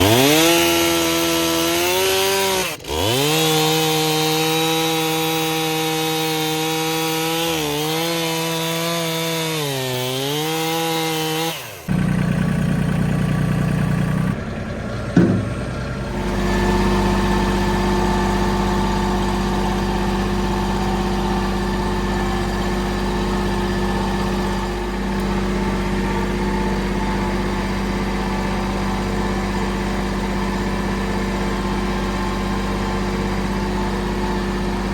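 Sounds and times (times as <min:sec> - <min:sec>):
engine running steadily: 0:00.0 - 0:05.8, 0:11.6 - 0:34.9
chainsaw cutting wood: 0:00.0 - 0:14.4, 0:16.1 - 0:34.9.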